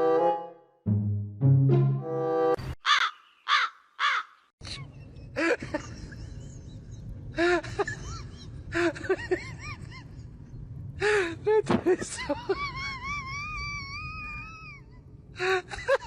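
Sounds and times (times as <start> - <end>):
crow cawing: 2.8 - 4.4
steady low rumble: 4.6 - 16.0.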